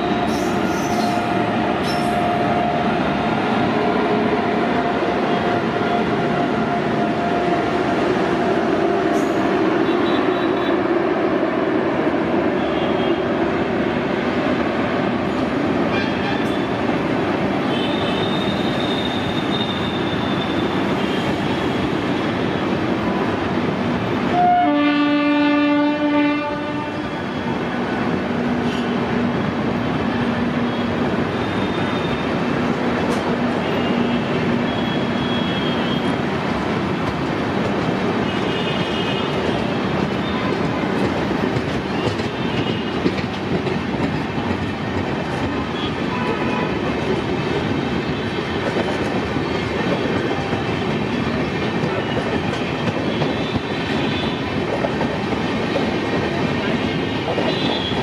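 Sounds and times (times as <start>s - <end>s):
train wheels rumbling over rails: 0.0s - 58.0s
locomotive air horn: 24.3s - 27.1s.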